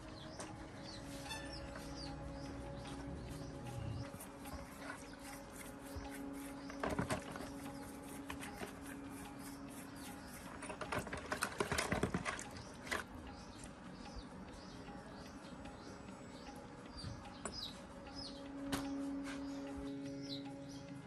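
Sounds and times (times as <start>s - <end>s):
steady low hum: 0.0s - 11.4s
faint birds chirping: 0.0s - 21.0s.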